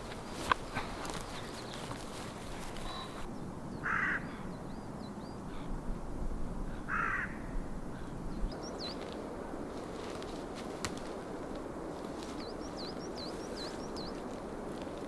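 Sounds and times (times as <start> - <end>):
crow cawing: 3.8 - 4.5, 6.7 - 8.1.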